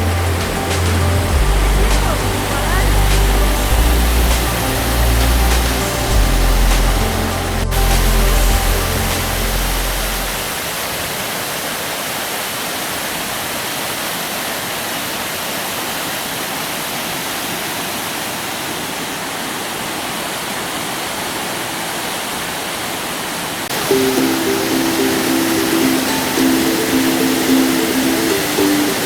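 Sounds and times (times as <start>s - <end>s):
music track: 0.0s - 10.6s, 23.7s - 29.0s
waterfall rushing: 0.0s - 29.0s.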